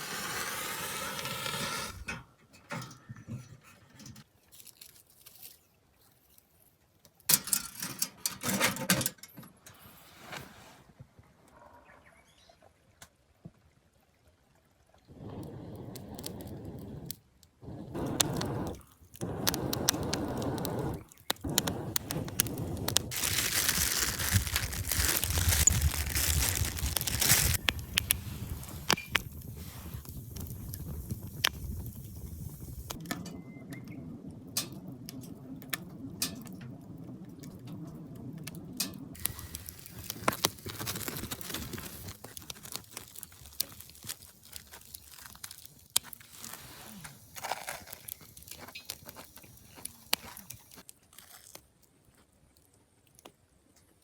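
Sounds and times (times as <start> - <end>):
rustling and crinkling: 3.4 - 7.3, 17.6 - 33.0, 37.4 - 54.0.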